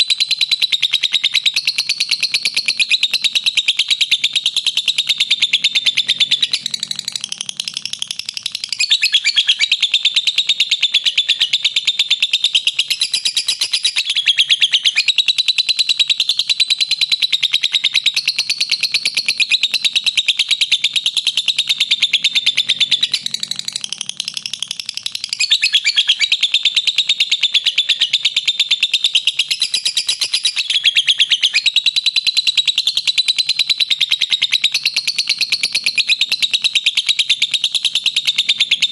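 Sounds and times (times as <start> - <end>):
lovebird chattering trills: 0.2 - 16.1, 16.8 - 38.9.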